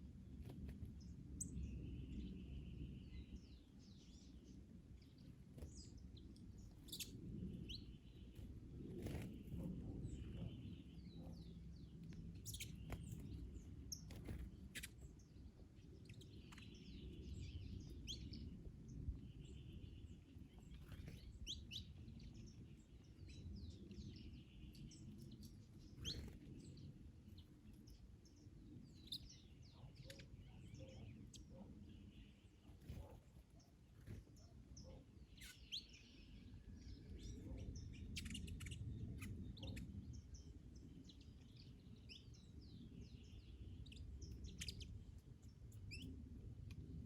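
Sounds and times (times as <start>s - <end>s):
low wind rumble: 0.0s - 35.4s, 36.0s - 47.0s
birds chirping and calling: 5.1s - 18.5s, 19.1s - 46.8s.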